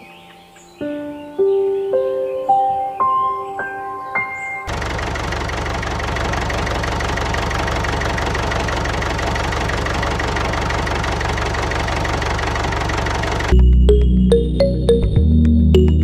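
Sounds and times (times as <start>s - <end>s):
engine idling with knocking: 4.7s - 13.6s.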